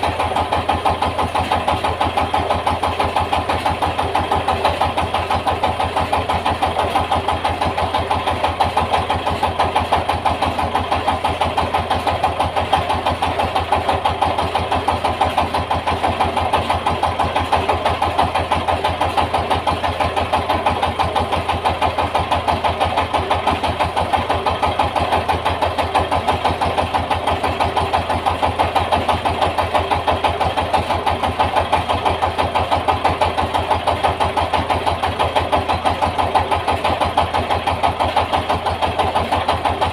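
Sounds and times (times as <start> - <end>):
diesel engine driving a mill: 0.0 - 39.9.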